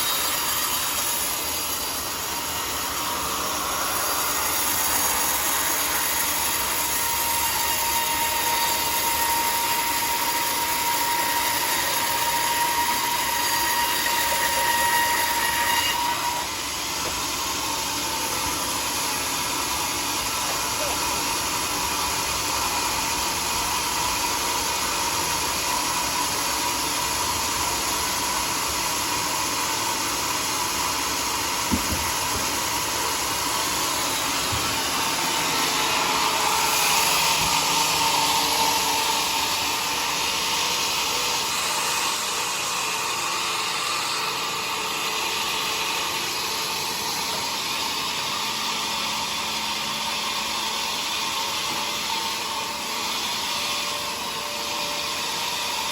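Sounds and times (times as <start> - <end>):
sawmill saw cutting log: 0.0 - 55.9
short knock: 31.7 - 32.5.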